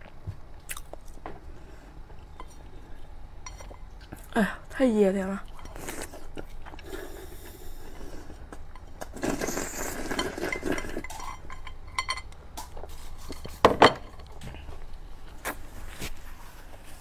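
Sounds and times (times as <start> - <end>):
utensils clinking against bowl: 3.4 - 4.3, 8.6 - 14.4.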